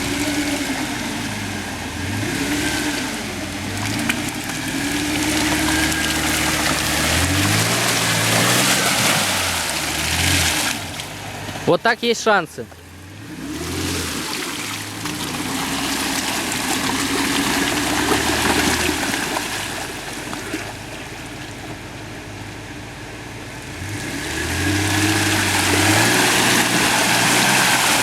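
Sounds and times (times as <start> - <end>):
water splashing: 0.0 - 22.8, 24.5 - 28.0
engine pulling under load: 0.0 - 28.0.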